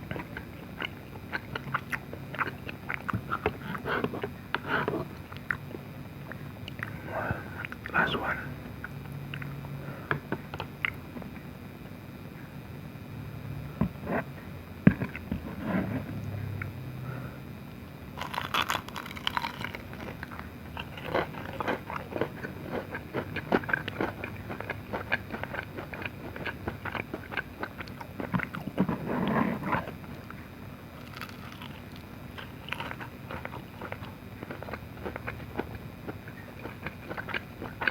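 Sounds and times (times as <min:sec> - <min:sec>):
biting and chewing food: 0:00.0 - 0:08.1, 0:18.1 - 0:37.9.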